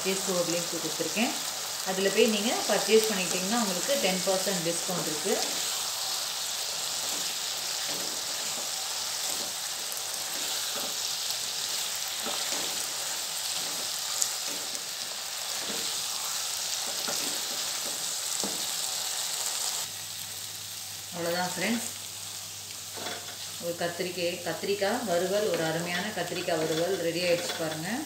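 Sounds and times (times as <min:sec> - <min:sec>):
vegetables sizzling in oil: 0:00.0 - 0:28.0
spatula scraping a pan: 0:12.1 - 0:14.8, 0:15.5 - 0:18.7.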